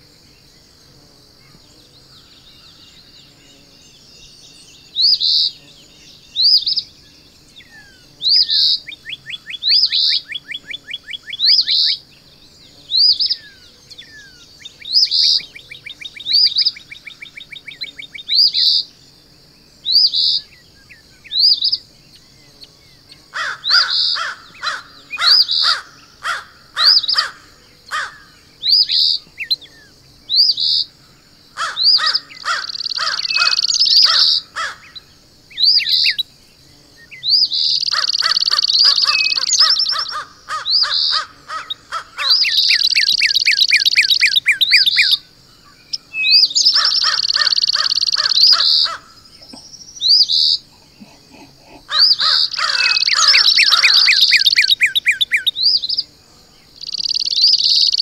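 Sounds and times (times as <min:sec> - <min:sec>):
steady high hiss: 0:00.0 - 0:58.0
harsh bird calls: 0:23.2 - 0:29.5, 0:31.6 - 0:36.2, 0:37.0 - 0:56.1
bird whistling rising notes: 0:52.0 - 0:55.5.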